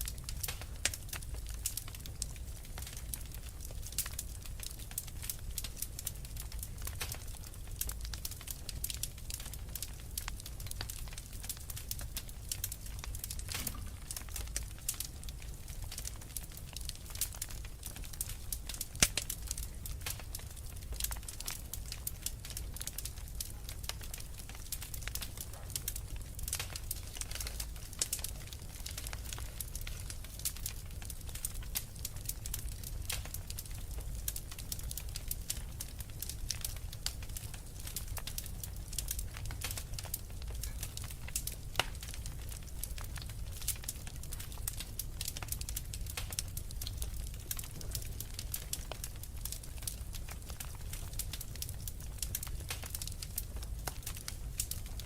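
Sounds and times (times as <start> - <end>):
logs crackling and popping: 0.0 - 55.0
low rumble of flames: 0.0 - 55.0.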